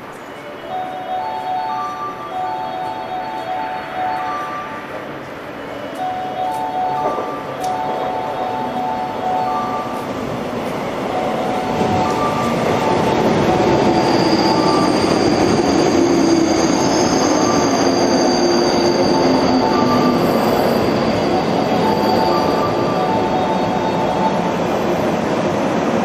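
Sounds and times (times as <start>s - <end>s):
electric train on rails: 0.0s - 26.0s
high wheel squeal: 12.3s - 24.3s.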